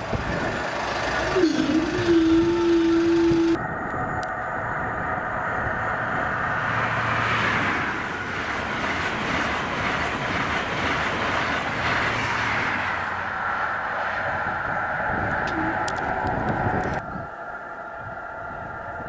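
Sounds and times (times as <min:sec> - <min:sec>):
express train passing: 0:00.0 - 0:19.0.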